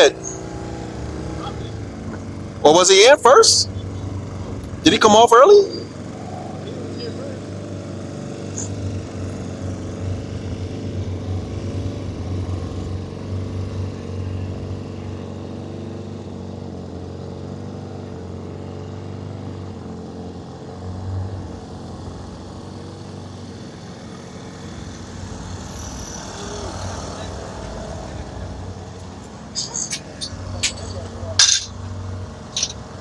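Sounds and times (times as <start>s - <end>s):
vehicle engine droning hum: 0.0s - 33.0s.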